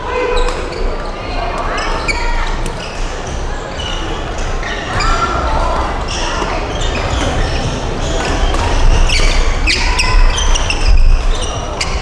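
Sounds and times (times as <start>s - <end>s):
shoes squeaking on sports floor: 0.2s - 12.0s
racket hitting shuttlecock: 8.2s - 10.5s.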